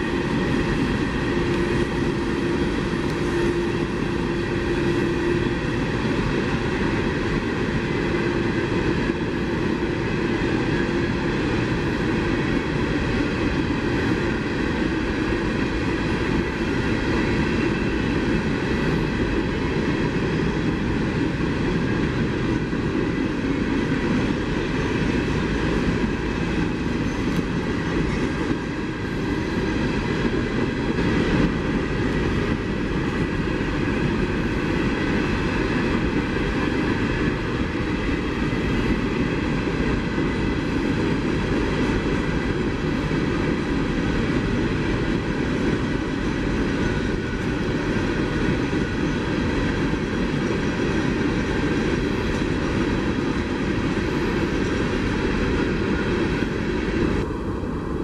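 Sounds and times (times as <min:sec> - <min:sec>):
train wheels on rail: 0:00.0 - 0:58.0.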